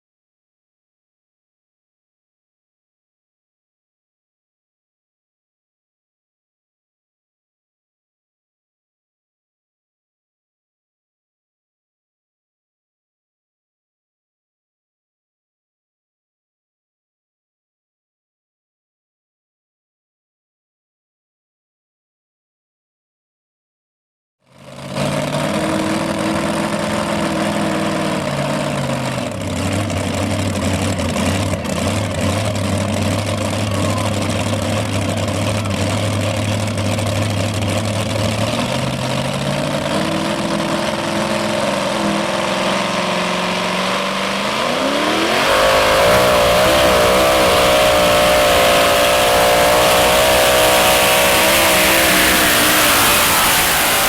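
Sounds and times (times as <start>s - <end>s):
truck engine revving: 24.5s - 54.0s.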